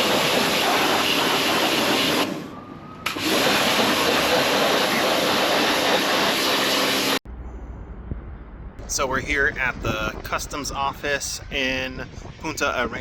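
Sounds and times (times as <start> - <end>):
high-pressure water spray hissing: 0.0 - 2.4, 3.1 - 7.2.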